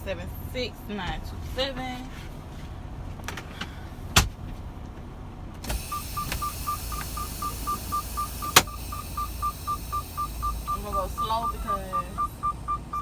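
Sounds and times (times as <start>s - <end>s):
truck engine rumbling: 0.0s - 13.0s
sharp clicks: 5.6s - 11.3s
warning beeper beeping rapidly: 5.7s - 13.0s.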